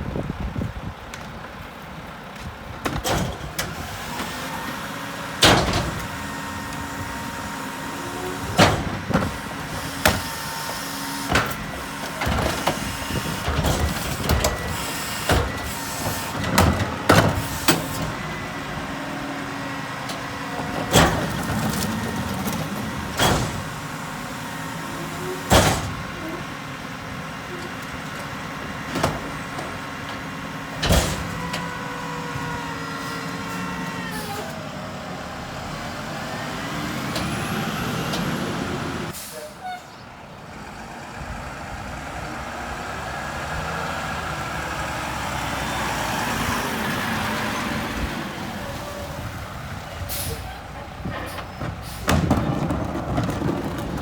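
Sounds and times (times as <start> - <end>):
garbage truck running: 0.0 - 54.0
trash cans banging into hopper: 51.2 - 54.0.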